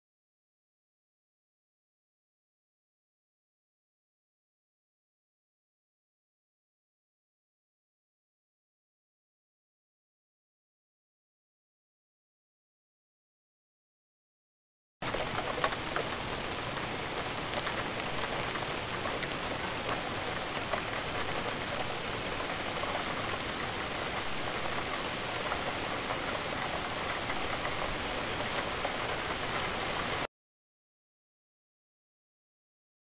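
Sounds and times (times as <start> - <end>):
raindrop hits: 15.0 - 30.3
steady rain falling: 15.0 - 30.3.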